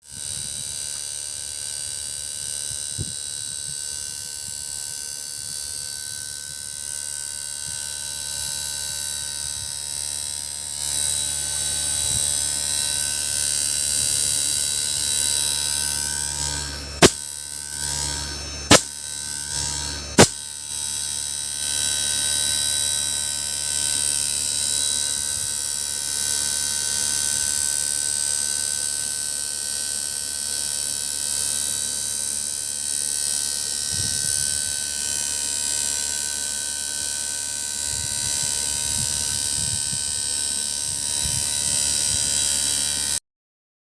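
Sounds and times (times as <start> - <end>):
air conditioner compressor humming: 6.4 - 25.8.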